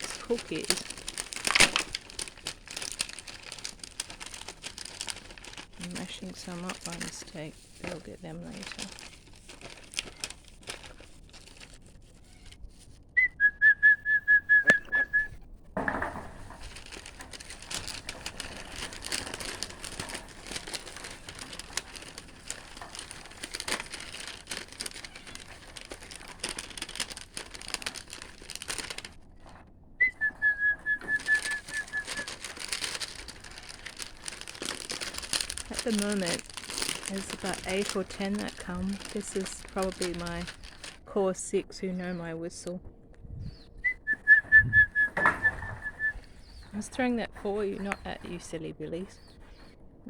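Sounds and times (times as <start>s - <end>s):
crackling crinkling rustle: 0.0s - 50.0s
person whistling bird call: 13.2s - 15.4s, 30.0s - 32.3s, 43.8s - 46.2s.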